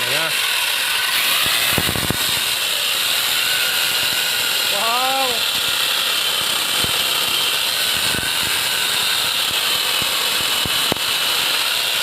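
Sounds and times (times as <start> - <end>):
angle grinder chainsaw whining: 0.0 - 12.0
sharp ticks: 9.4 - 11.1.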